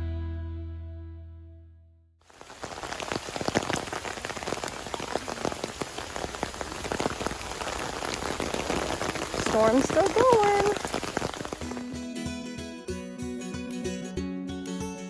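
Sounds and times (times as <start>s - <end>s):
heavy rain downpour: 2.3s - 11.9s
raindrops spattering: 2.3s - 11.9s.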